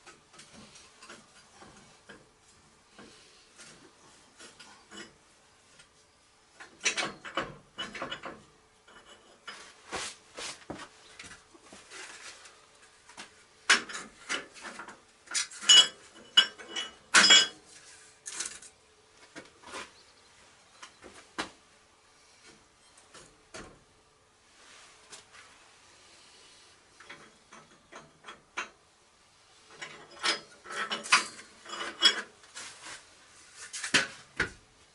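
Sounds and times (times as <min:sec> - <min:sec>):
faint steady hum: 0:00.0 - 0:34.9
metal tools clinking on workbench: 0:15.3 - 0:17.6.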